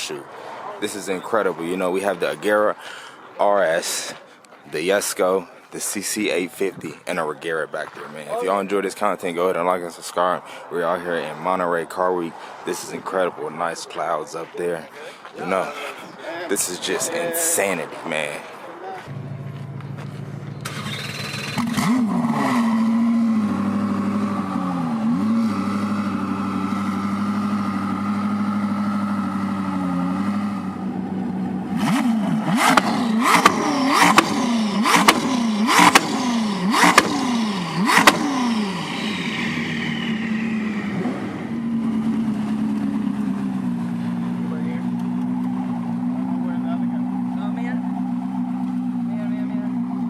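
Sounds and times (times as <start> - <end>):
car engine starting and idling: 19.0 - 50.0
engine revving with sharp cracks: 19.0 - 50.0.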